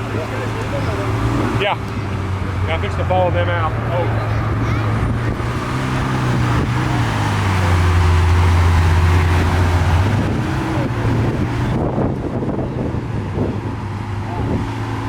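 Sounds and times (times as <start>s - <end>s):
car engine driving past: 0.0s - 12.5s.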